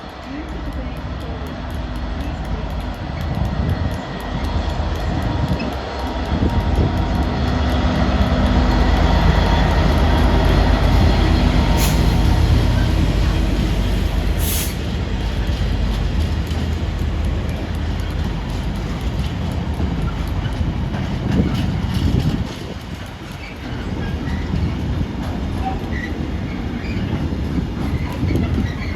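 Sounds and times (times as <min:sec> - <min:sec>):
train rumbling past: 0:00.0 - 0:28.9
deep engine drone: 0:00.1 - 0:21.4.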